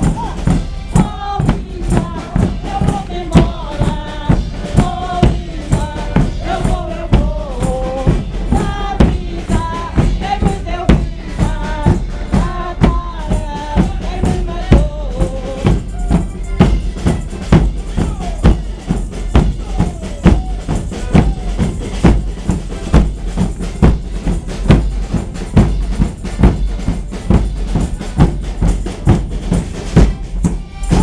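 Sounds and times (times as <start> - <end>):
bass drums and snare drums: 0.0 - 31.0.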